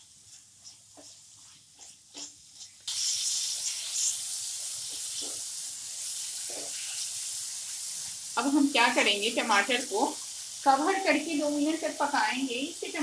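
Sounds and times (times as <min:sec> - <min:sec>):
spatula scraping pan: 0:00.0 - 0:04.2, 0:04.8 - 0:07.2
tomatoes sizzling in oil: 0:00.0 - 0:13.0.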